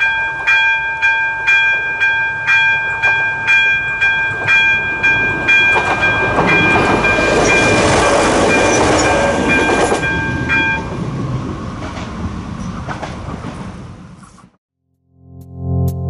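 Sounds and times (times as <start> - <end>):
level crossing bell ringing: 0.0 - 10.9
train running past: 0.0 - 14.4.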